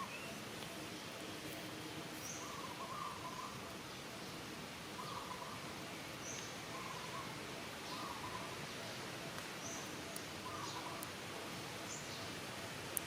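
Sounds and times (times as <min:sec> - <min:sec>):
bird calls: 0:00.0 - 0:01.2, 0:02.2 - 0:11.2
steady hiss: 0:00.0 - 0:13.0.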